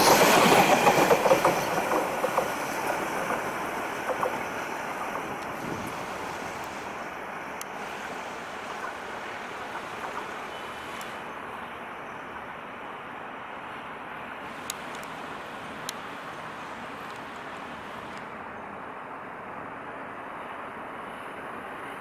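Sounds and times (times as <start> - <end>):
wheels clicking over rail joints: 0.0 - 7.0, 8.7 - 11.2
train coaches rolling past: 0.0 - 22.0.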